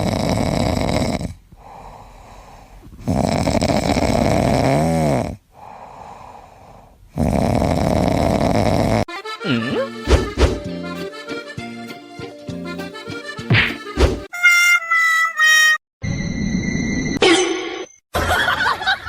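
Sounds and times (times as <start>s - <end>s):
loud snoring: 0.0s - 1.8s, 3.0s - 5.4s, 7.1s - 9.8s
quiet breathing: 1.1s - 3.2s, 5.3s - 7.2s.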